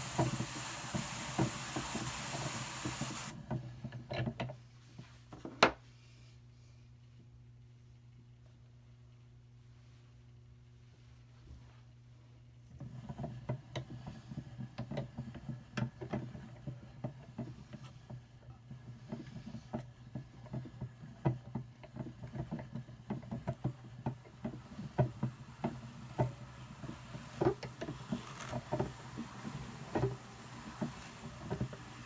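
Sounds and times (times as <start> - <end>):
drum carder humming: 0.0 - 3.4, 22.3 - 32.0.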